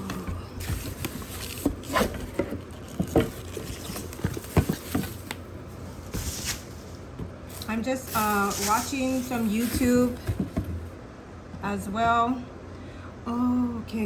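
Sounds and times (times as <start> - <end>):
cardboard box knocks and rustles: 0.1 - 5.3, 8.6 - 11.0.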